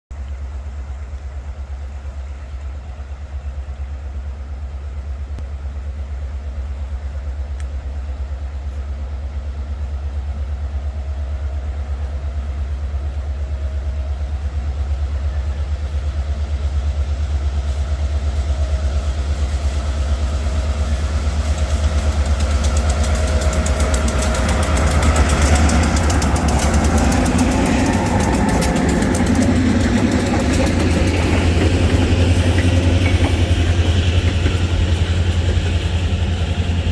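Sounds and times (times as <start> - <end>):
locomotive engine rumble: 0.1 - 36.9
high-pitched train noise: 10.1 - 36.9.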